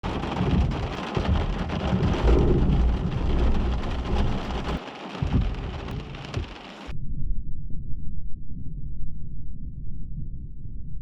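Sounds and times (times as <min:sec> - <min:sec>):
rain falling: 0:00.0 - 0:06.9
rolling thunder: 0:00.0 - 0:06.9.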